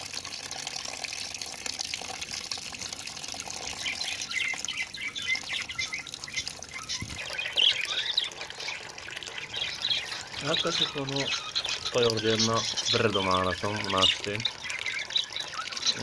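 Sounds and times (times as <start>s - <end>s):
water running: 0.0s - 16.0s
budgies chirping: 3.7s - 16.0s.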